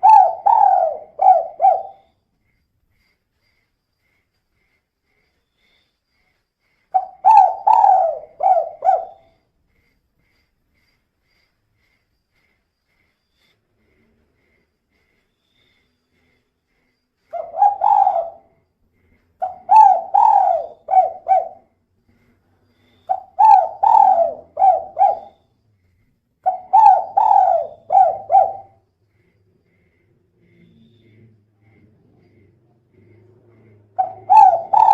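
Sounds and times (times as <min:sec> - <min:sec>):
dove cooing: 0:00.0 - 0:02.1, 0:06.9 - 0:09.4, 0:17.3 - 0:18.6, 0:19.4 - 0:21.7, 0:23.1 - 0:25.4, 0:26.4 - 0:28.8, 0:33.0 - 0:34.9.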